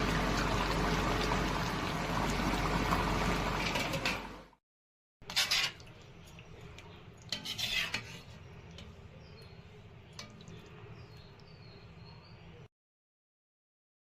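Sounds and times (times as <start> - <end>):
metal spoon scraping cooking pot: 5.2 - 11.2.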